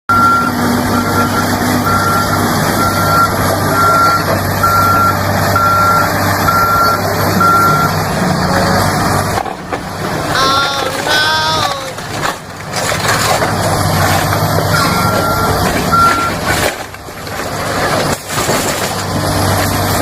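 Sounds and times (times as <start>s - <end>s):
excavator travel alarm beeping: 0.1s - 8.1s, 14.6s - 16.5s
excavator engine running: 0.1s - 20.0s.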